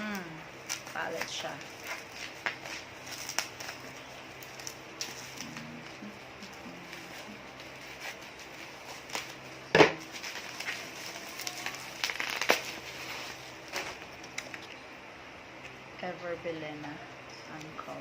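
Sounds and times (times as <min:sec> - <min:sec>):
plastic crinkling: 0:00.0 - 0:15.8.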